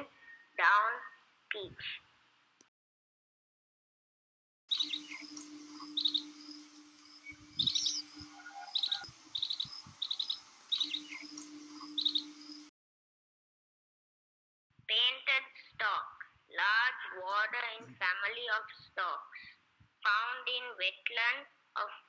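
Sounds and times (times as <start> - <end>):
bird trilled calls: 4.7 - 12.7
low steady hum: 4.7 - 12.7.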